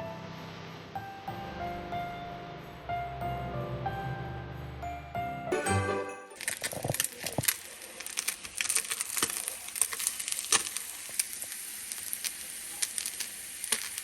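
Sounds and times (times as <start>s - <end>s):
food sizzling in hot oil: 5.6s - 14.0s
oil crackling and popping: 6.3s - 14.0s.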